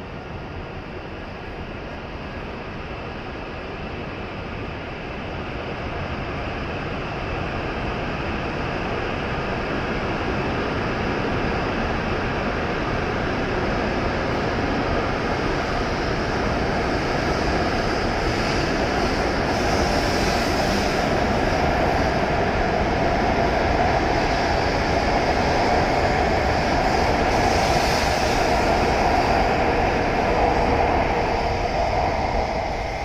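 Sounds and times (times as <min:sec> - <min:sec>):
train running noise: 0:00.0 - 0:33.0.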